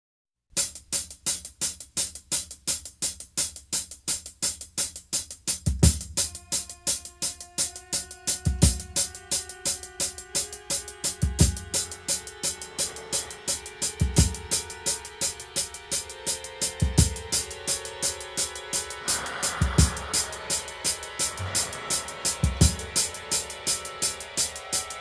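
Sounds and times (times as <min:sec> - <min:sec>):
steady ticking beat: 0:00.6 - 0:25.0
held chords: 0:06.2 - 0:25.0
deep drum hits: 0:21.1 - 0:23.2.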